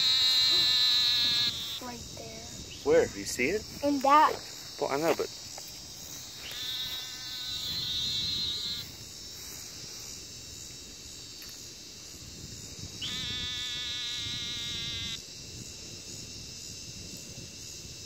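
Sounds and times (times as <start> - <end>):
buzzy trilled animal calls: 0.0 - 2.0, 6.4 - 8.9, 13.0 - 15.2
steady high hiss: 0.0 - 18.0.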